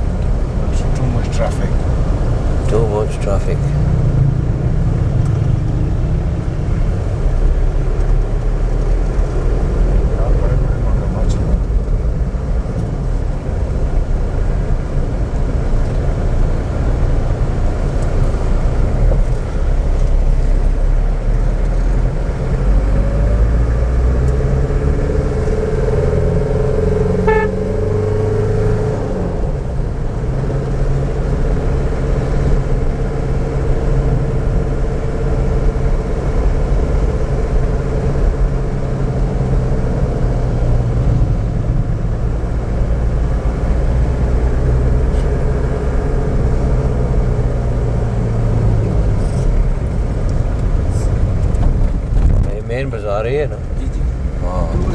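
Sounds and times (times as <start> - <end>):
car engine and road noise: 0.0 - 54.9
held tone: 27.1 - 27.9.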